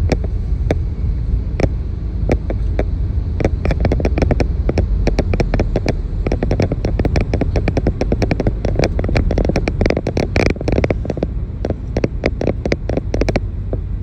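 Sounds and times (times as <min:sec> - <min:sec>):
irregular clicks and crackles: 0:00.0 - 0:00.9, 0:01.5 - 0:14.0
motor vehicle rumbling: 0:00.0 - 0:14.0.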